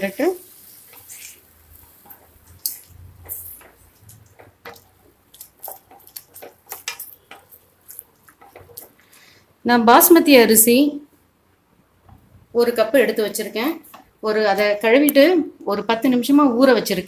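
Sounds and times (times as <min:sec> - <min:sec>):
wooden spatula stirring in metal pot: 0:00.1 - 0:09.4.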